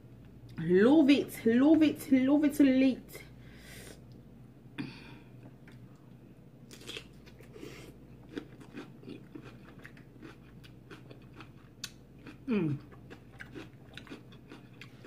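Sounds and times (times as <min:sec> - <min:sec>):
chewing crunchy vegetables: 0:06.7 - 0:15.0.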